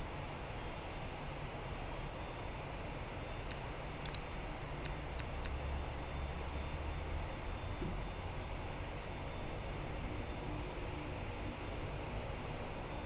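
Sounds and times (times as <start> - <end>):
faint clicks: 3.5 - 5.6.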